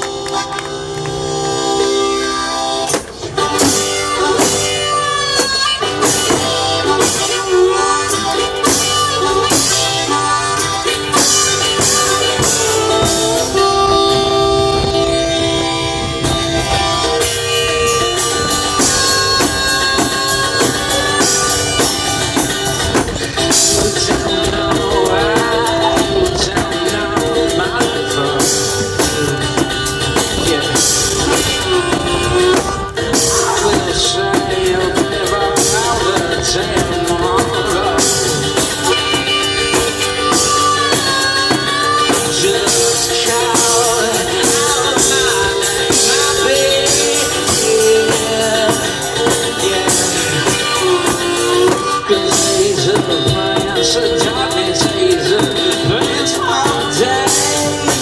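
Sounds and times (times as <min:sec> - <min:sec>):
drum kit beat: 0:00.0 - 0:58.0
guitar: 0:00.0 - 0:58.0
person singing: 0:16.6 - 0:58.0.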